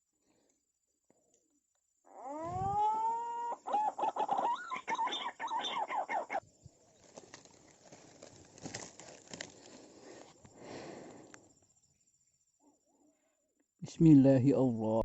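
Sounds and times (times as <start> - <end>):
bird calling and warbling: 2.2 - 6.4
faint rustling: 6.9 - 11.4.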